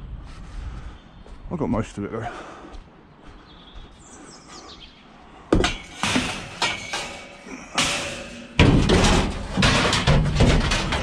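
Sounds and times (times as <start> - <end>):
scrap metal clanking: 5.5 - 11.0.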